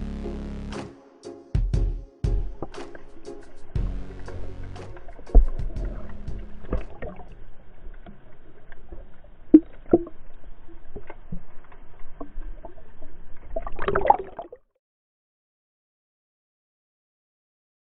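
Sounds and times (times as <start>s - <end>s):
water sloshing: 2.4s - 14.6s.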